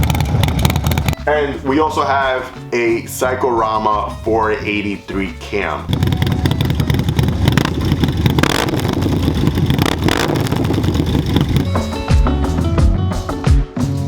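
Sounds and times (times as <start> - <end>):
motorcycle engine running loud: 0.0 - 1.2, 5.9 - 12.0
music: 1.2 - 8.0, 11.6 - 14.0.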